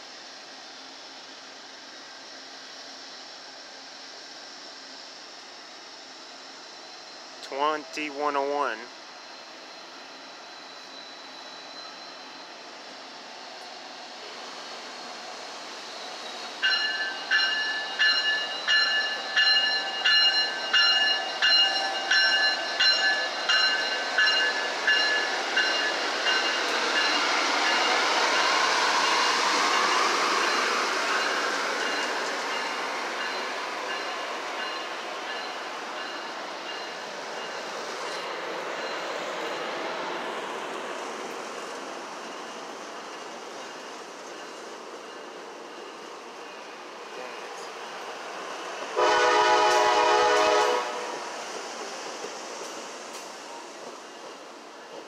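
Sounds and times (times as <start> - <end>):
train wheels and rail noise: 0.0 - 55.0
train bell ringing: 6.4 - 12.9, 16.0 - 40.2, 42.2 - 51.2.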